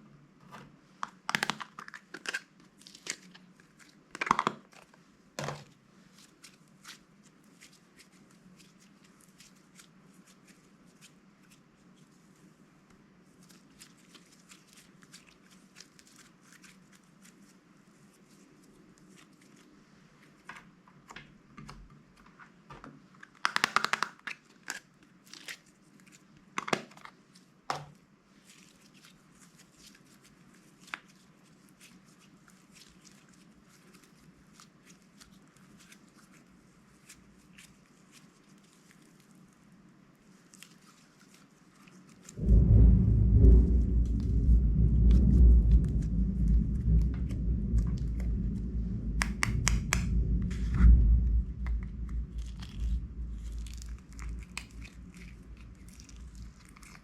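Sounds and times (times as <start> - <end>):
plastic packaging crinkling and tearing: 1.0 - 5.0, 52.3 - 57.0
faint crackles: 42.1 - 57.0.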